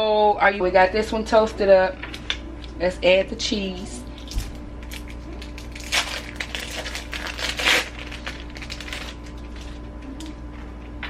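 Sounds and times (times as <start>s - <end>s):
faint steady hum: 0.0s - 11.0s
plastic wrapping crinkling: 4.0s - 10.3s.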